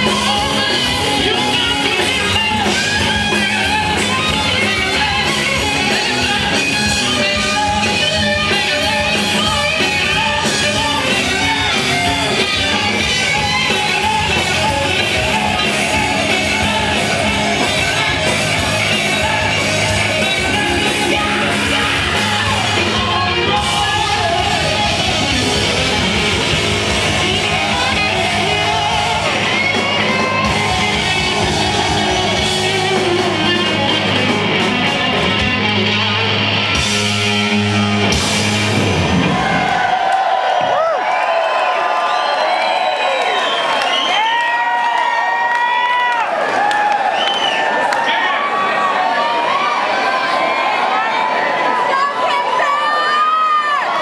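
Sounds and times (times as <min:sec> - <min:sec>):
live rock band playing: 0:00.0 - 0:40.7
electric guitar: 0:00.0 - 0:41.0.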